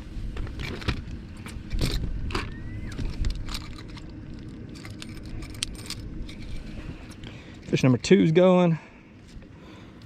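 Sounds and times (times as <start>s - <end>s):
low steady rumble: 0.0s - 10.0s
clicks and clinks of handling gear: 0.4s - 8.0s.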